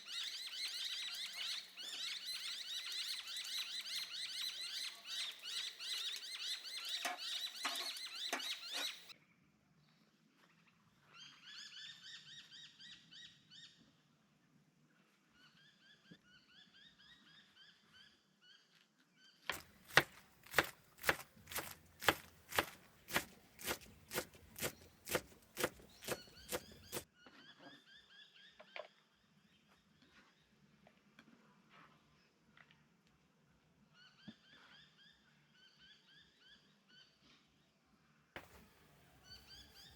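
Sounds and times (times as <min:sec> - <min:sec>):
birds calling: 0:00.0 - 0:09.1, 0:19.5 - 0:27.1, 0:38.4 - 0:39.9.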